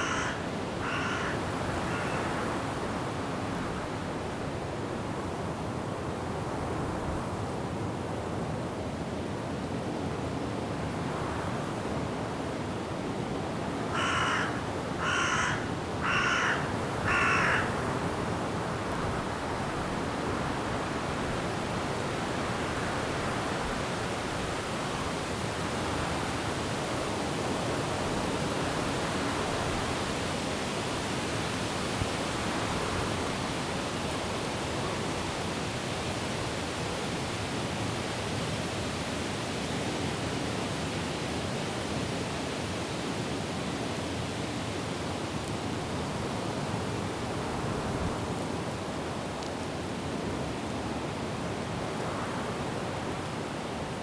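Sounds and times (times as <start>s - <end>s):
bird harsh calls: 0.0s - 2.3s, 14.0s - 17.7s
wind and rain in trees: 0.0s - 54.0s.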